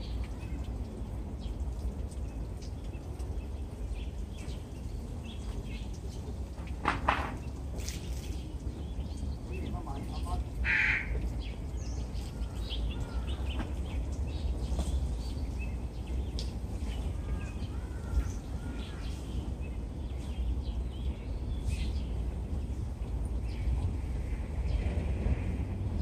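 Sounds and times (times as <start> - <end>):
birds chirping: 7.2 - 25.4.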